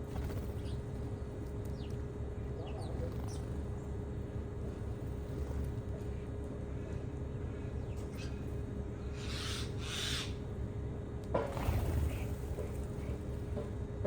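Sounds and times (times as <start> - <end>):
low background rumble: 0.0 - 14.0
harsh raspy bird calls: 9.1 - 10.4.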